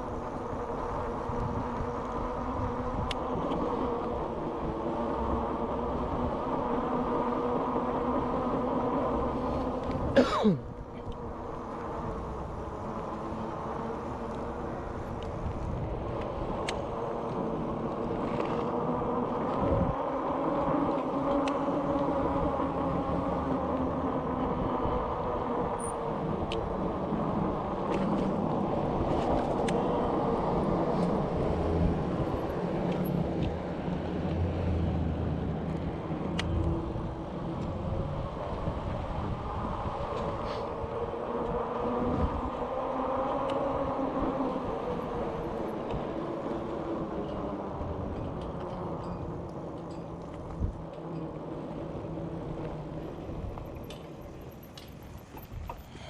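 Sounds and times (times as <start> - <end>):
wind on camera: 0.0 - 10.2, 10.8 - 55.9
bicycle tyres rolling on road: 0.0 - 56.0.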